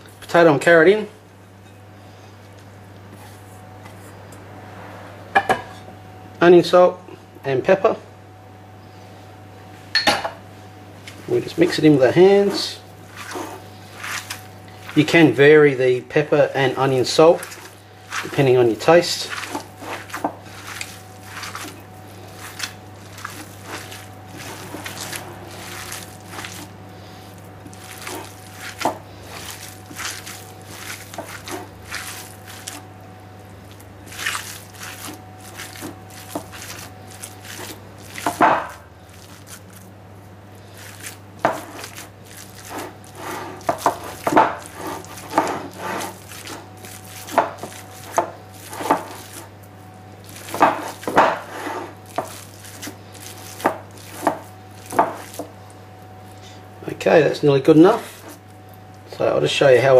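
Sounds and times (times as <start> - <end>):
wet squelches and slaps: 13.1 - 15.0, 19.2 - 32.9, 33.6 - 39.9.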